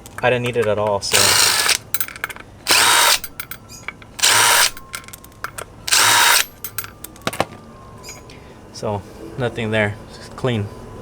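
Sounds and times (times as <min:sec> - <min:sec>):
power drill running: 0:01.1 - 0:03.6, 0:04.2 - 0:04.9, 0:05.9 - 0:06.9.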